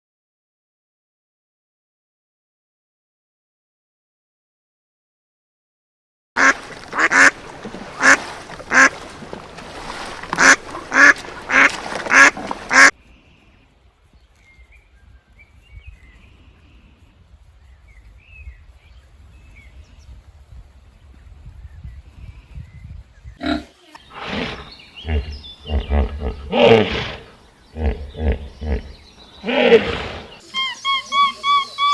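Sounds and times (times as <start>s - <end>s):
farm bird calling: 6.4s - 12.9s, 22.6s - 31.9s
small birds chirping: 10.4s - 31.9s.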